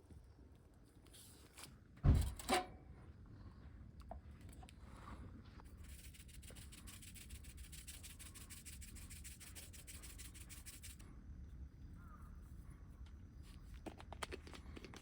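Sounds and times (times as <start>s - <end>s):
rapid regular scraping strokes: 5.7s - 11.0s.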